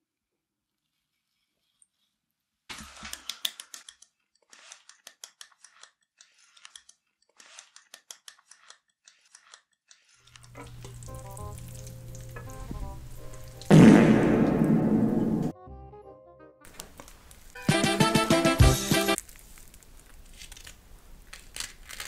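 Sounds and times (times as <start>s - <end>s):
crunchy chewing: 4.3s - 13.7s
background music: 10.6s - 16.8s, 17.6s - 19.2s.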